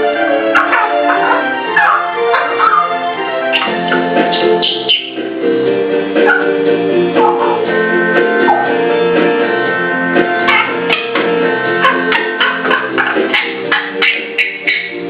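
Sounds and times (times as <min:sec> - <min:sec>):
parrot babbling: 0:00.0 - 0:05.2, 0:06.2 - 0:06.6, 0:07.2 - 0:07.7, 0:08.4 - 0:08.8, 0:10.4 - 0:15.0
plucked guitar music: 0:00.0 - 0:15.0
parrot whistling and clicking: 0:03.5 - 0:05.2.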